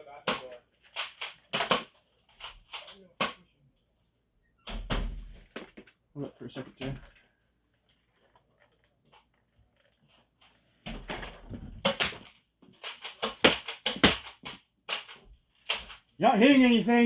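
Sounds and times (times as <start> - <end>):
foam darts striking: 11.8 - 12.2, 13.2 - 14.5.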